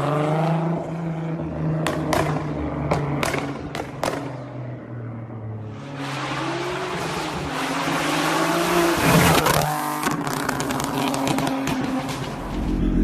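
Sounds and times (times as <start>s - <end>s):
car engine revving: 0.0s - 13.0s
exhaust pops and crackles: 9.3s - 13.0s.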